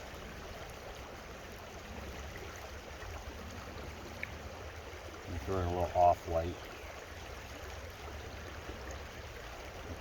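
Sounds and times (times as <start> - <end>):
creek water running: 0.0 - 10.0.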